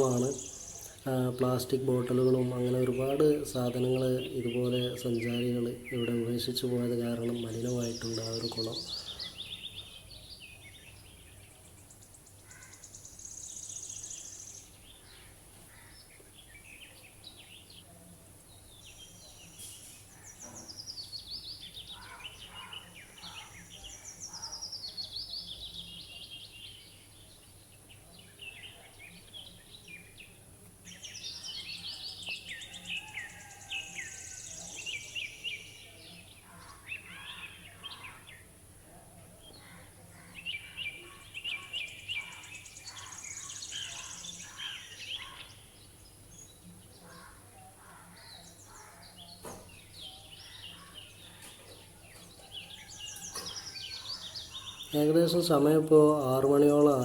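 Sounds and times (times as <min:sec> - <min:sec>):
steady high-pitched hiss: 0:00.0 - 0:10.2, 0:11.4 - 0:15.6
birds chirping and twittering: 0:00.0 - 0:57.0.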